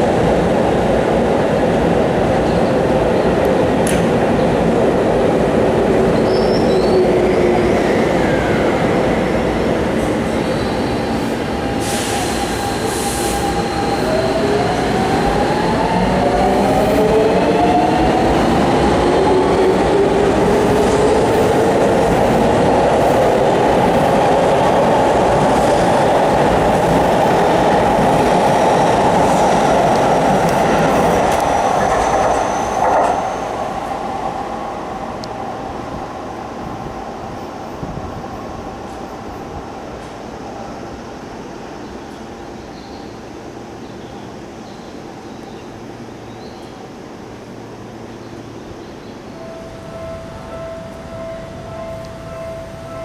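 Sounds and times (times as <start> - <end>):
train wheels on rails: 0.0 - 40.5.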